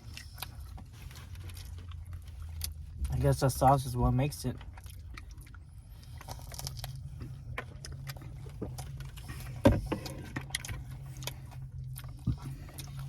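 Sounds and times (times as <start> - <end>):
food wrap rustling and clicks: 0.0 - 3.8, 4.5 - 13.0
steady low hum: 0.0 - 13.0.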